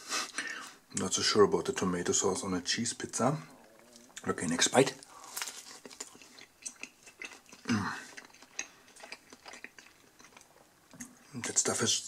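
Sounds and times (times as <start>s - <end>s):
person chewing: 3.5s - 11.3s.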